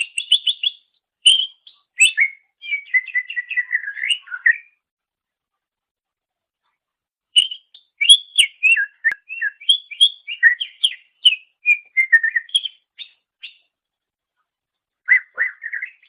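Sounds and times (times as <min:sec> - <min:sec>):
bird singing whistled notes: 0:00.0 - 0:04.8, 0:07.4 - 0:13.7, 0:15.0 - 0:16.0.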